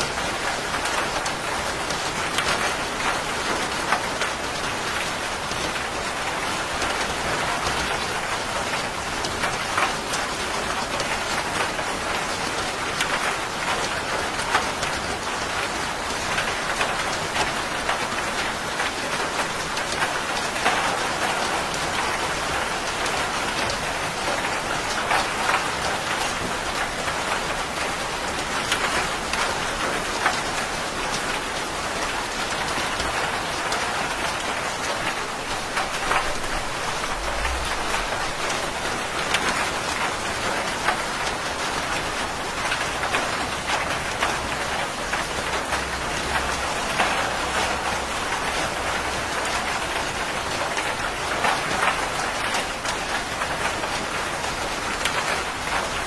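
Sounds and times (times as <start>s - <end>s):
heavy rain pattering: 0.0s - 56.0s.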